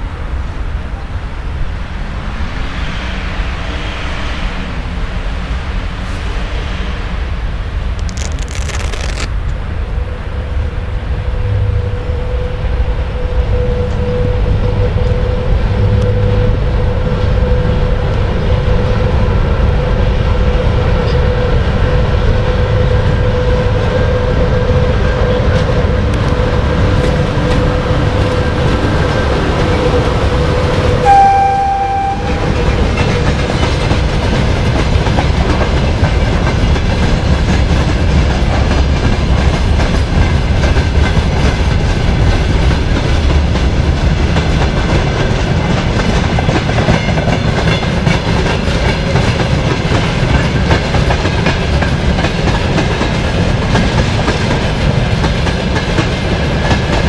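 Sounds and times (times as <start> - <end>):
locomotive rumble and whine: 0.0 - 57.0
train horn blast: 31.0 - 33.0.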